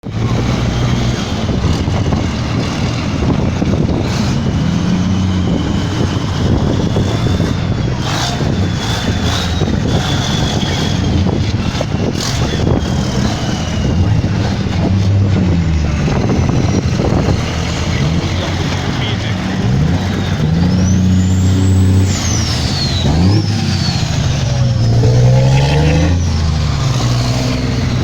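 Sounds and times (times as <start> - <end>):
diesel engines rumbling: 0.0 - 28.0.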